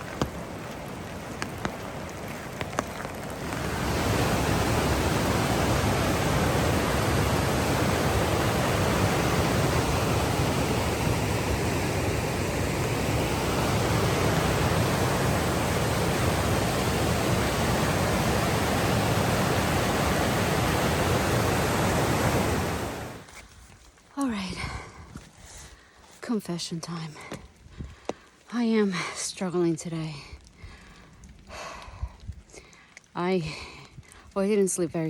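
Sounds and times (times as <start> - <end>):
fast river rushing: 0.0 - 23.3.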